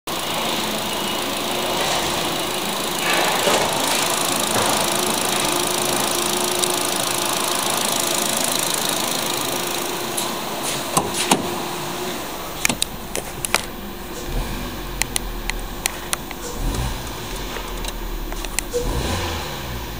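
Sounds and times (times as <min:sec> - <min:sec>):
car engine running: 0:00.1 - 0:19.9
sharp clicks: 0:15.0 - 0:18.9.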